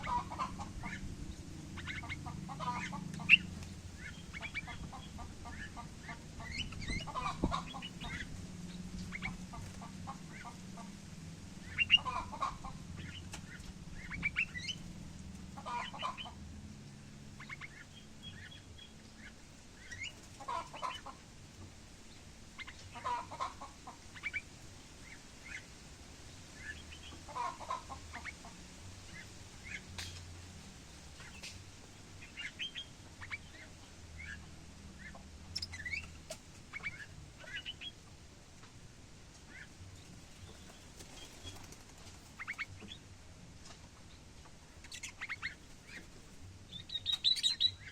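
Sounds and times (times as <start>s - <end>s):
bird calling: 0.0s - 10.9s, 11.6s - 14.9s, 17.3s - 21.2s, 32.2s - 38.0s, 44.8s - 47.9s.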